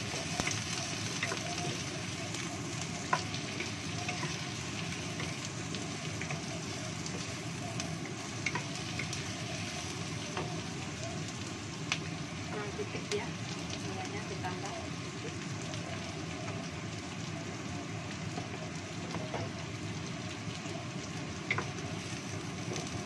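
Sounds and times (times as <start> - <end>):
shallots sizzling in hot oil: 0.0 - 23.0.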